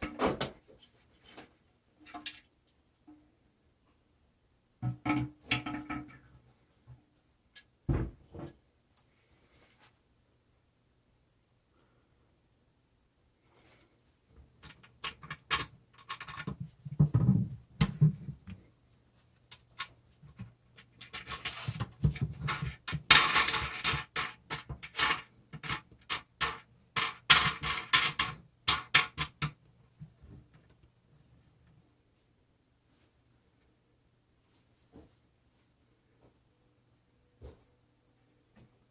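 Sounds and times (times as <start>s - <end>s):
tools clicking knocking and scraping: 14.6s - 17.2s, 19.4s - 29.6s
hard parts clattering: 19.5s - 29.5s.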